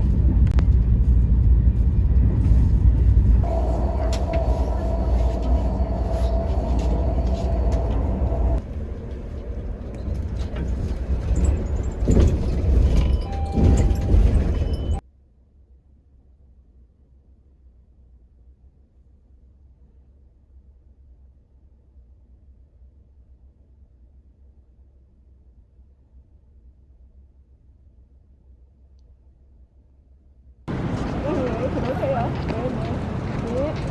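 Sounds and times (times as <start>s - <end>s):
vehicle rumble: 0.0s - 15.0s, 30.7s - 33.9s.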